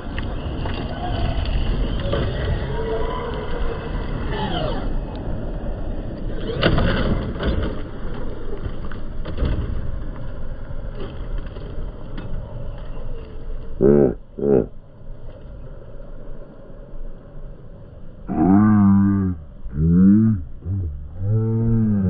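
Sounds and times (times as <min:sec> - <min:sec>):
steady noise: 0:13.8 - 0:14.9, 0:16.2 - 0:22.0.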